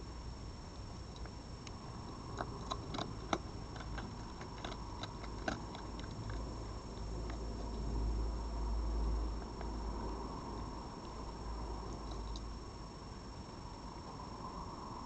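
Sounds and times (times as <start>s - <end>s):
steady low hum: 0.0s - 15.0s
animal crunching dry food: 1.1s - 8.1s, 11.8s - 12.5s.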